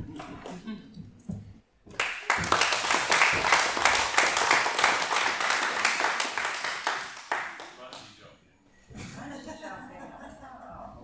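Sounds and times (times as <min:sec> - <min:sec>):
audience clapping: 0:01.9 - 0:08.2.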